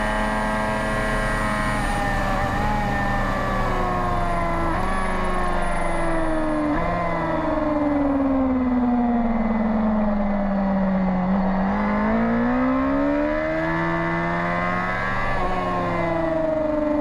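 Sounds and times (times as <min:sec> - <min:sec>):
racing motorcycle engine revving: 0:00.0 - 0:05.9, 0:11.1 - 0:17.0.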